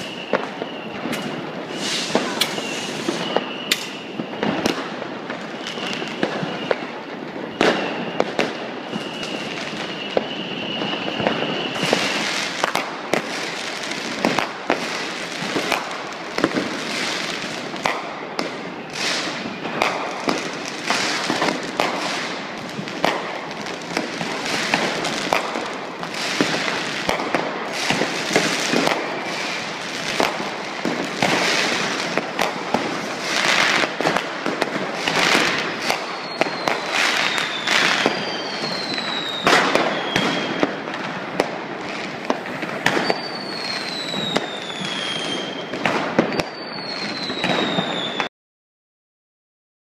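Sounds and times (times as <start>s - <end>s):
falling firework whistles: 0.0s - 48.3s
firecrackers banging: 0.0s - 48.3s.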